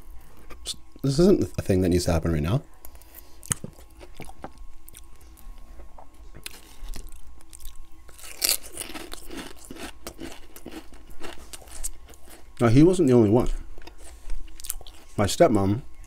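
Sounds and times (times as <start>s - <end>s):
chewing with wet clicks: 6.4s - 12.5s, 13.8s - 15.1s
crunching: 6.4s - 12.6s.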